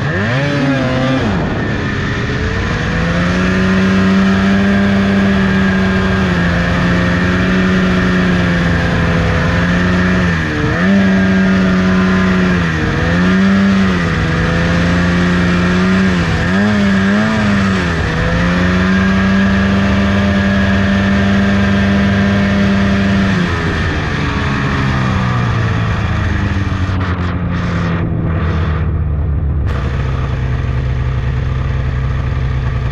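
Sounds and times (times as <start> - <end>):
snowmobile engine revving: 0.0 - 29.1, 29.7 - 32.9.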